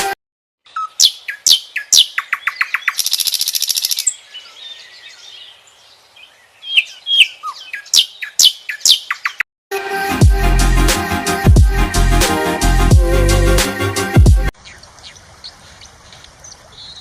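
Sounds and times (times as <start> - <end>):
bird singing: 0.6 - 9.4, 14.6 - 17.0.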